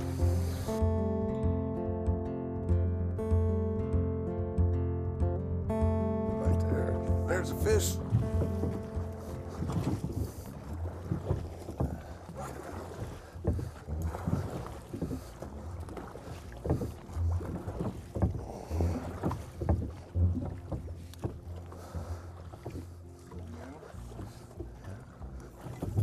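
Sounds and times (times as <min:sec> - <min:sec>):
steady low rumble: 0:05.4 - 0:20.4
knocks and splashes: 0:06.4 - 0:26.0.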